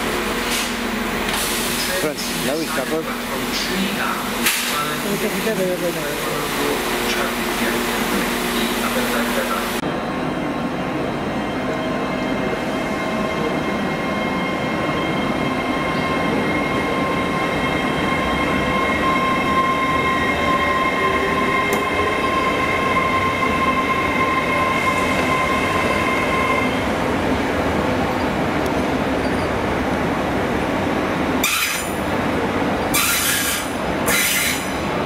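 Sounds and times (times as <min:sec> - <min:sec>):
train running noise: 0:00.0 - 0:35.0
high-pitched wheel squeal: 0:13.8 - 0:26.8, 0:32.9 - 0:34.7.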